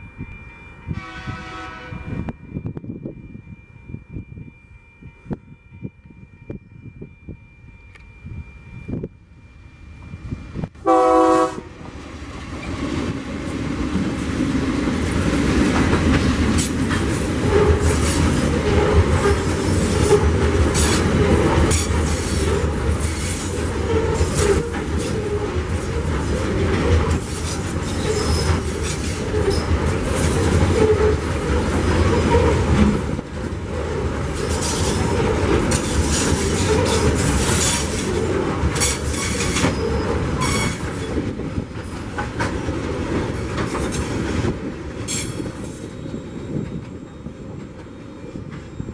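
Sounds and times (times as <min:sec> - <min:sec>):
locomotive horn blast: 0:00.9 - 0:02.4, 0:10.8 - 0:11.9
train wagons rumbling: 0:10.1 - 0:48.9
wheels clicking over rail joints: 0:12.5 - 0:47.0.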